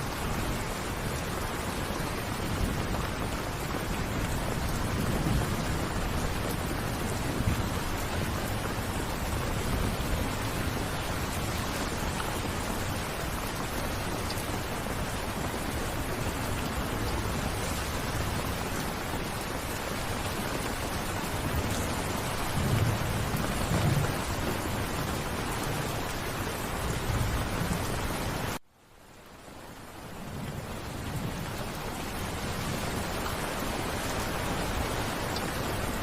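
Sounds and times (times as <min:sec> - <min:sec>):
steady rain: 0:00.0 - 0:36.0
thunder rumbling: 0:21.3 - 0:28.6.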